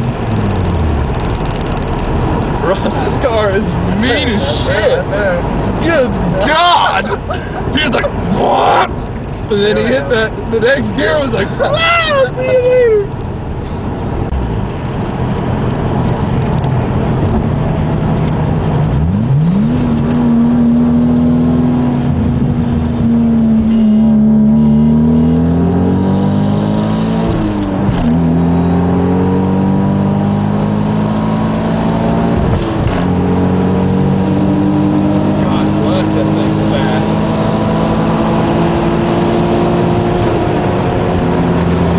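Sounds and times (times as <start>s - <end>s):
car engine accelerating: 12.4s - 41.9s.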